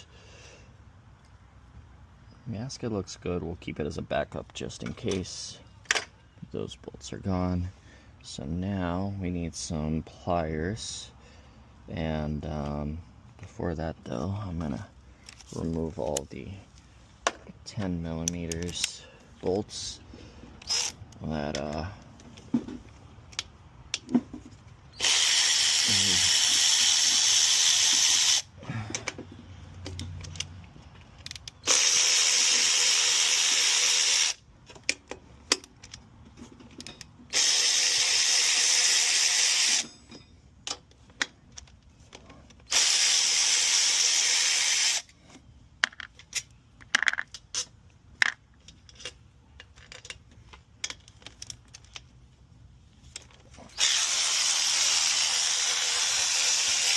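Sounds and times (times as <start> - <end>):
pneumatic air ratchet hissing: 20.6 - 21.0, 24.9 - 28.5, 31.3 - 34.4, 37.3 - 40.0, 42.6 - 45.2, 53.7 - 56.9
metal tools clicking and knocking: 34.7 - 37.2, 45.8 - 52.1.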